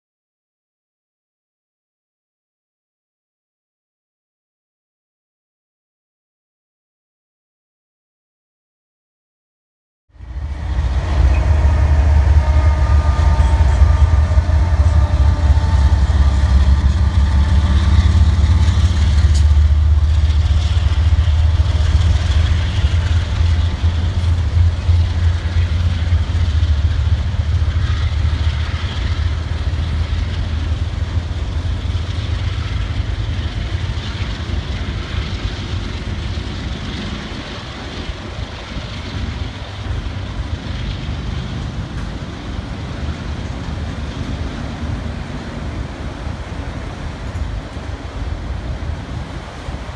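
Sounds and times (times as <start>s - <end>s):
diesel locomotive passing: 10.1s - 49.9s
train cars rumbling on rails: 10.1s - 49.9s.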